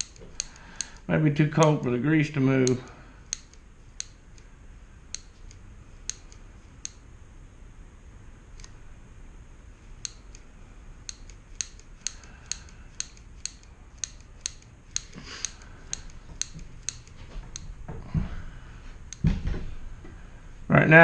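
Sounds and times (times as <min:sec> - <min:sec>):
low thump: 0:19.2 - 0:19.8.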